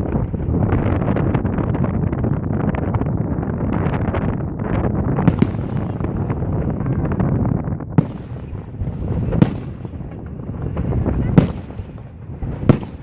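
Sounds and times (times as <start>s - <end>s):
fireworks crackling: 0.0s - 13.0s
sharp firework bangs: 5.2s - 13.0s.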